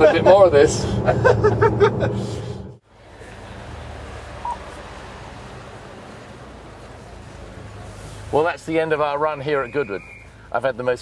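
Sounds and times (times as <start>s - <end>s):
low engine hum: 0.0s - 8.4s
outdoor background noise: 0.0s - 11.0s.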